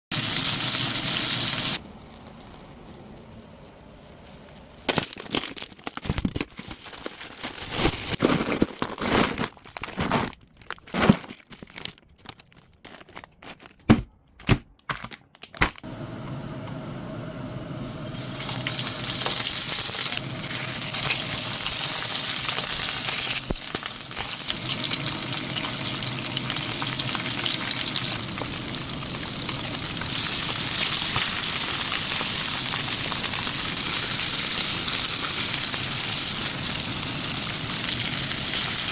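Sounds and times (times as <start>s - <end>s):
fish sizzling on grill: 0.1s - 4.7s, 17.8s - 38.9s
package being opened: 1.8s - 15.8s, 18.4s - 24.8s.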